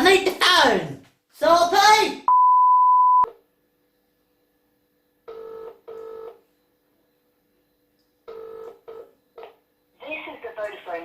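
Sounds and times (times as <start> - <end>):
steady beep: 2.3 - 3.3
telephone ringback tone: 2.3 - 3.3, 5.3 - 6.5, 8.3 - 9.6.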